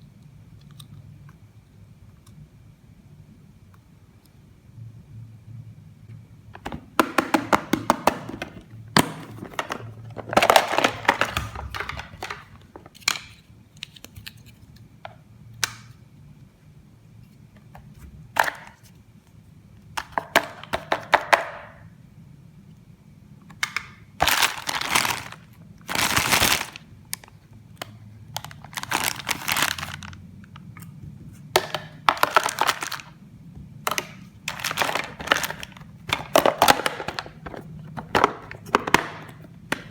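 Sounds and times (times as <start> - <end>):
plastic packaging crinkling: 8.0 - 14.6, 24.2 - 27.4, 28.3 - 30.8, 31.6 - 33.2, 33.9 - 39.9.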